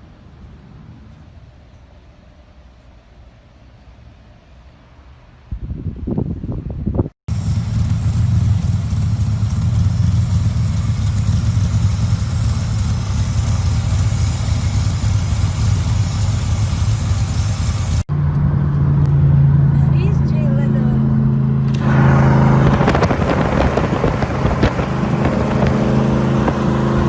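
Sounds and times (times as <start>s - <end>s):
car engine running: 7.3s - 27.0s
engine revving: 7.3s - 27.0s.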